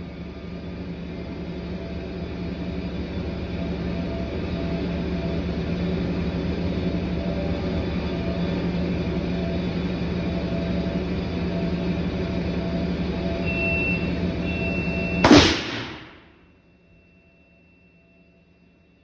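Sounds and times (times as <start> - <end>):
circuit breaker compressed air blast: 15.2 - 16.2.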